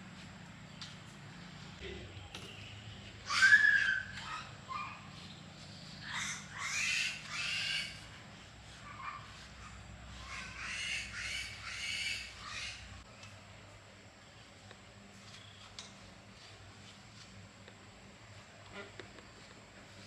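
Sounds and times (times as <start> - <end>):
bird calls: 0.6 - 13.0.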